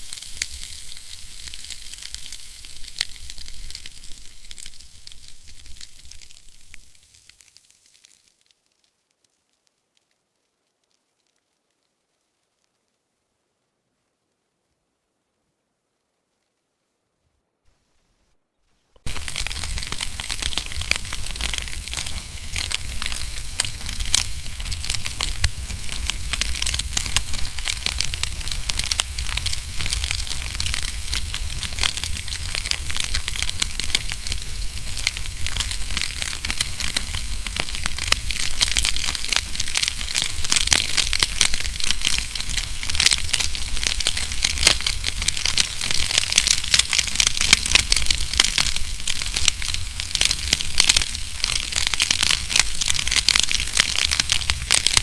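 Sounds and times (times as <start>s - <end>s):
low rumble of fire: 0.0s - 7.4s, 19.0s - 55.0s
wood fire crackling: 0.0s - 12.8s, 19.0s - 55.0s.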